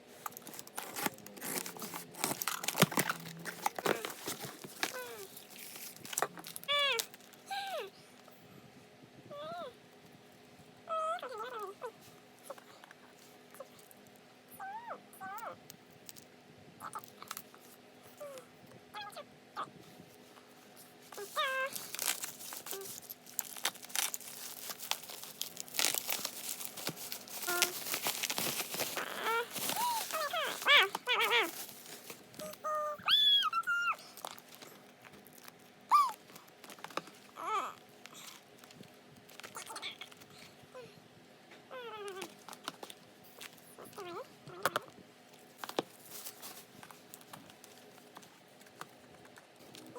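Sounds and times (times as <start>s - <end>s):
packaging crinkling and tearing: 0.2s - 7.4s, 21.1s - 40.4s, 41.8s - 49.9s.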